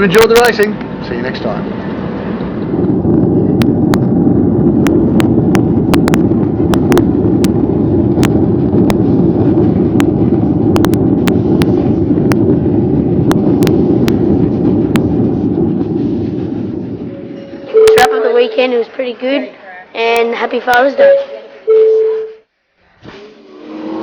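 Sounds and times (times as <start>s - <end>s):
airliner engine rumble: 0.0s - 23.0s.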